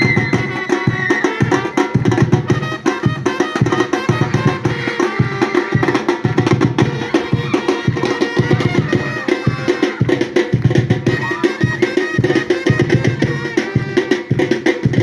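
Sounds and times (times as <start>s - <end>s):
samba percussion ensemble: 0.0s - 15.0s.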